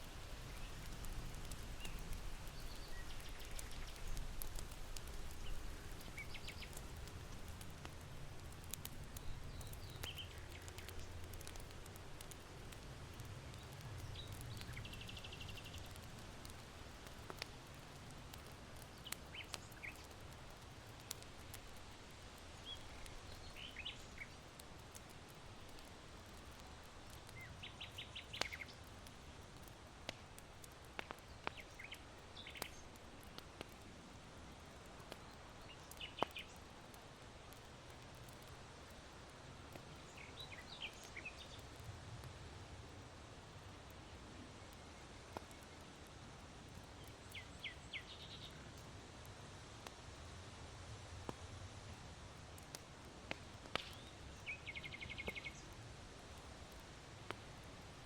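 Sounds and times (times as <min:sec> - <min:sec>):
charcoal crackling and popping: 0:00.0 - 0:58.0
small birds chirping: 0:00.2 - 0:21.8, 0:22.4 - 0:33.8, 0:34.6 - 0:38.9, 0:39.7 - 0:41.9, 0:46.8 - 0:48.8, 0:53.4 - 0:55.8.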